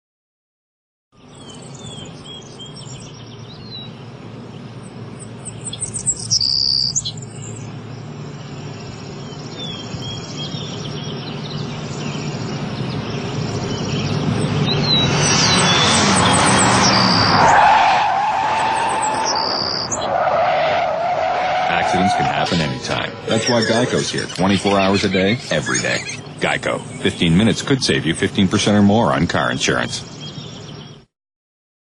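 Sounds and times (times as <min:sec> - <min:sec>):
small birds chirping: 0:01.2 - 0:17.4, 0:21.6 - 0:31.1
loud high bird call: 0:08.6 - 0:27.0.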